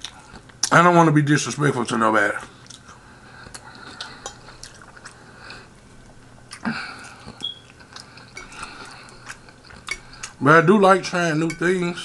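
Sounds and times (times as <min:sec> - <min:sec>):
person chewing food: 0:00.0 - 0:00.7, 0:02.4 - 0:10.4.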